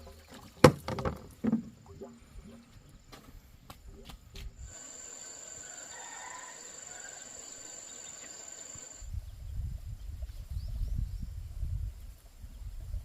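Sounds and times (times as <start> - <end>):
insect high-pitched drone: 4.6 - 9.1.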